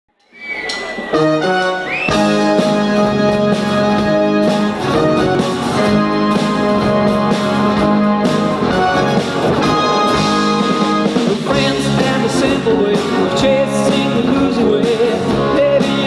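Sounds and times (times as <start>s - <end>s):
live band playing pop song: 0.4s - 16.0s.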